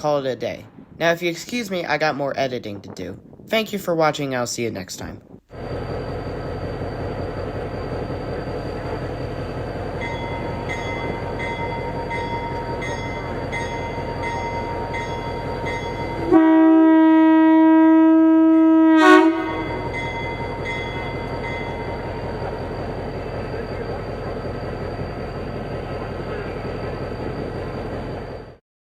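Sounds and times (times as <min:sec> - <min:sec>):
train rumbling past: 0:04.9 - 0:28.6
locomotive air horn: 0:16.2 - 0:19.9.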